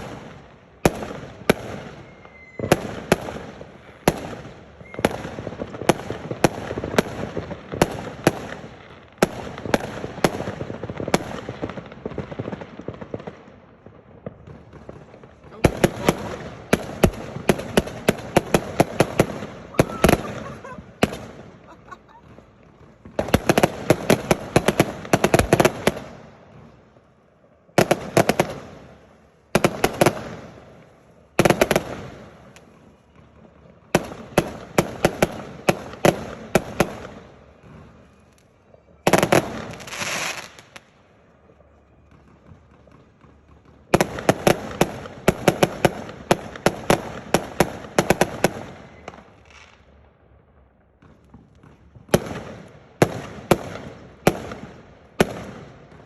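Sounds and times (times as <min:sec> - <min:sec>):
fireworks bangs and crackles: 0:00.0 - 0:56.0
firework hiss: 0:39.5 - 0:40.8.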